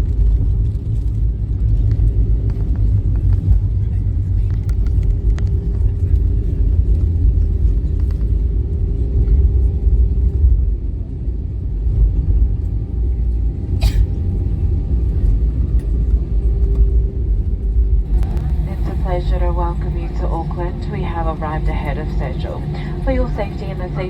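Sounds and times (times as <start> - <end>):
airplane cabin rumble: 0.0 - 24.0
faint steady hum: 12.4 - 24.0.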